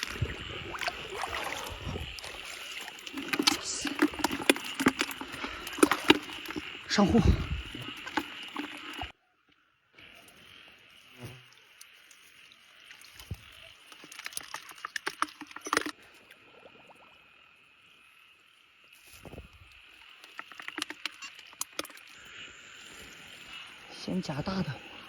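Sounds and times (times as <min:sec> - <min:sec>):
frogs and insects chorus: 0:00.0 - 0:09.1, 0:10.0 - 0:25.0
splashes in shallow water: 0:00.0 - 0:09.1.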